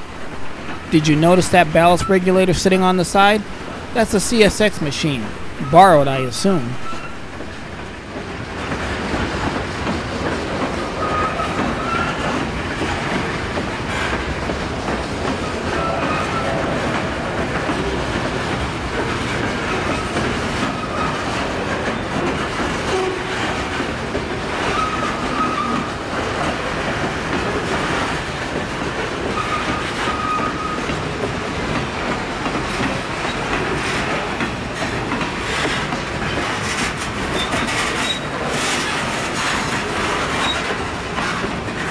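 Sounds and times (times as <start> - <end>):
train cars clattering on rails: 0.0 - 2.4, 6.6 - 41.9
high wheel squeals: 6.8 - 8.0, 29.4 - 30.9, 37.3 - 40.7.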